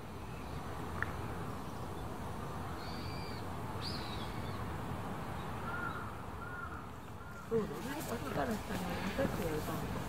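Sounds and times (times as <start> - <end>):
bird calls: 2.7 - 4.6, 5.6 - 7.8.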